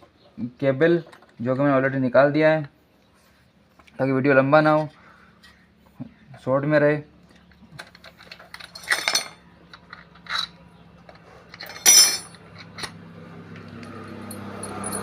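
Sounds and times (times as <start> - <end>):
metal tools and bolts clinking: 7.8 - 10.7, 11.5 - 13.0, 13.6 - 15.0.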